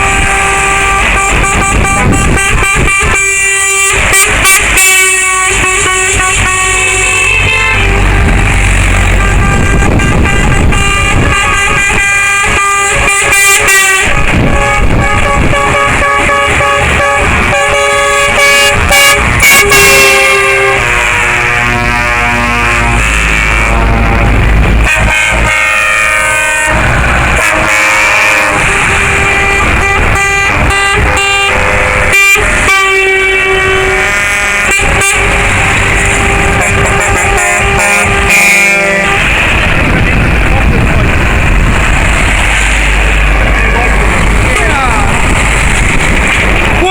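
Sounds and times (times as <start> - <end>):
lorry air horns: 0.0 - 40.5
truck engines rumbling: 0.0 - 46.9.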